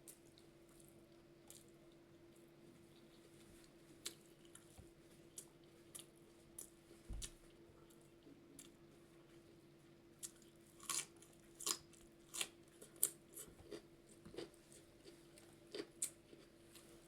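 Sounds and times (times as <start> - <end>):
faint steady hum: 0.0 - 17.0
person chewing: 10.2 - 17.0.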